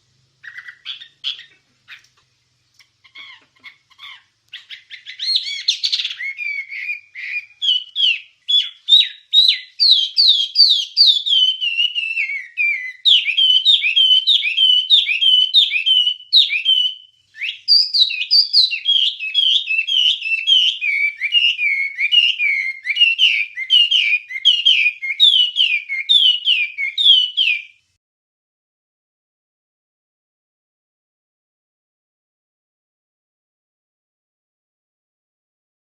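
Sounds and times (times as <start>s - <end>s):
songbird whistled chirps: 0.4s - 2.1s, 2.8s - 27.9s.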